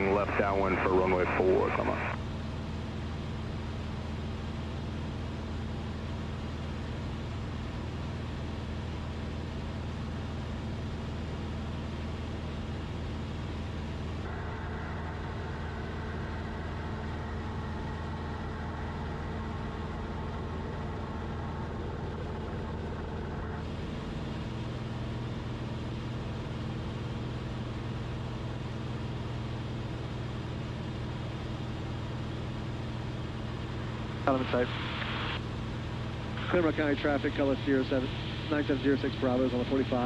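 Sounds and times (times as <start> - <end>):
airplane engine and propeller droning: 0.0 - 40.0
higher steady tone: 14.2 - 23.6.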